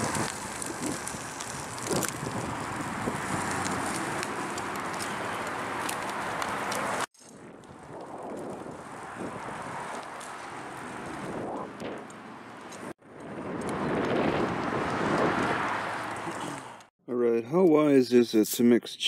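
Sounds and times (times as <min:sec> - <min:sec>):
wind on microphone: 0:00.0 - 0:05.0, 0:07.3 - 0:10.1, 0:10.8 - 0:12.1, 0:12.8 - 0:16.7
road traffic rumble: 0:00.0 - 0:16.9.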